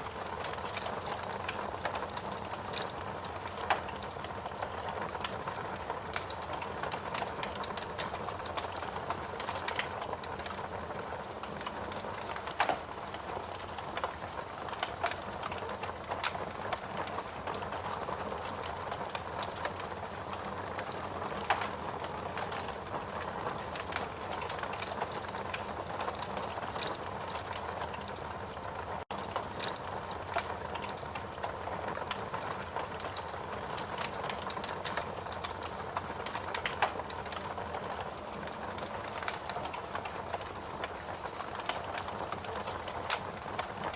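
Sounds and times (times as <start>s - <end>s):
log fire crackling: 0.0s - 43.9s.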